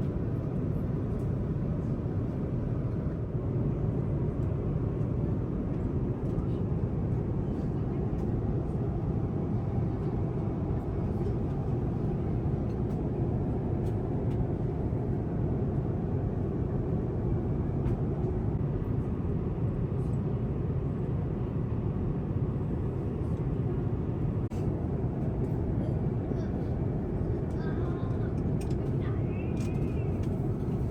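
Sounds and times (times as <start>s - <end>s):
airliner cabin engine rush: 0.0s - 30.9s.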